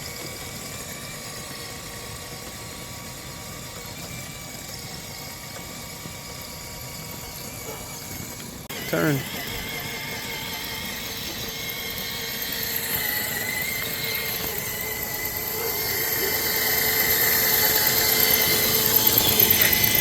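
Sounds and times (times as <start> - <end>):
rc car electric motor whining: 0.0 - 20.0.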